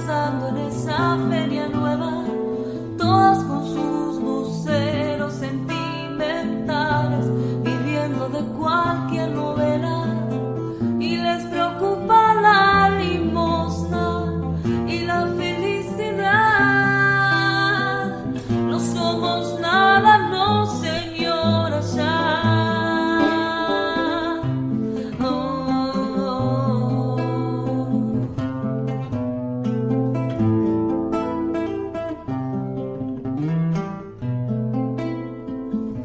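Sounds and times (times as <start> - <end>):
woman singing with vibrato: 0.0 - 28.6
strummed acoustic guitar: 0.0 - 36.0.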